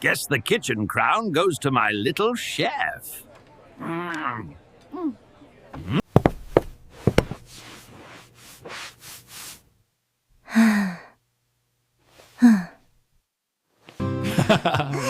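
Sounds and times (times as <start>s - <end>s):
breathy sighs: 10.4s - 11.2s, 12.4s - 12.8s
soft breathy rustling: 12.0s - 12.9s.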